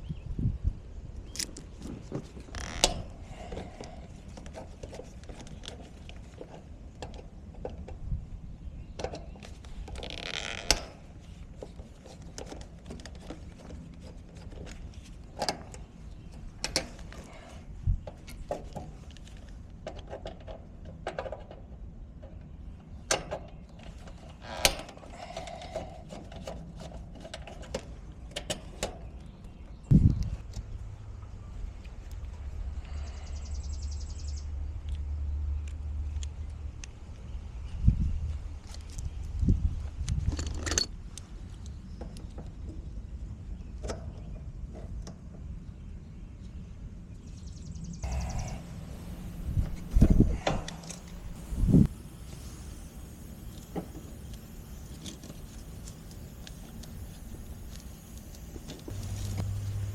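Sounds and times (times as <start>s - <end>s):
brief hiss: 48.0s - 59.9s.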